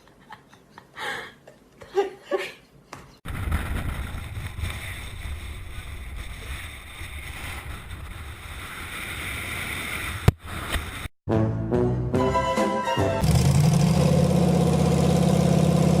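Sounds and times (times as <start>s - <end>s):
steady rumbling noise: 3.3s - 10.4s.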